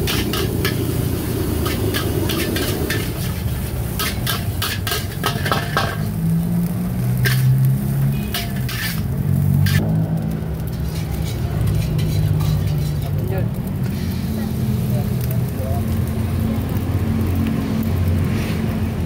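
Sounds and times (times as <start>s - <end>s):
metal spatula scraping a wok: 0.0s - 6.2s, 7.0s - 9.8s, 10.6s - 14.6s
food sizzling: 0.0s - 19.0s.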